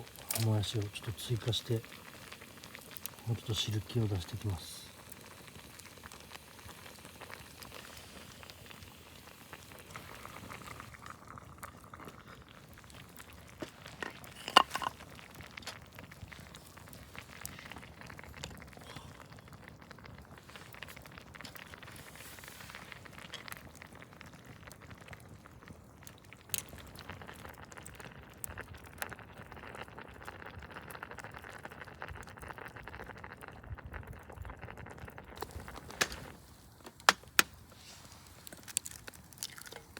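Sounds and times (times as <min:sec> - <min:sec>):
pot simmering and bubbling: 0:00.0 - 0:39.9
small crackles: 0:00.0 - 0:39.9.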